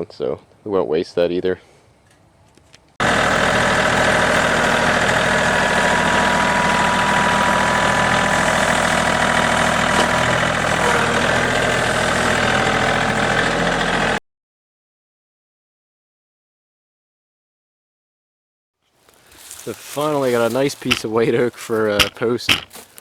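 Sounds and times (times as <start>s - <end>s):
sawmill engine running: 3.0s - 14.2s, 19.3s - 23.0s.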